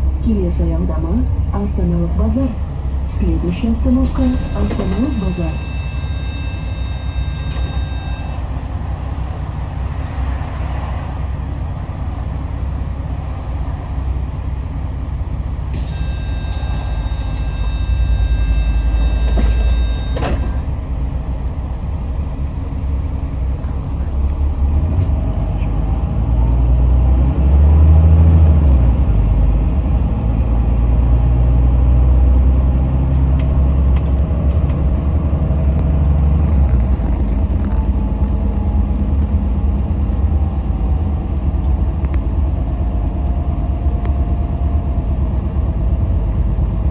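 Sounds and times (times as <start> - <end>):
bus engine and road rumble: 0.0 - 46.9
high electronic tone: 3.6 - 8.4.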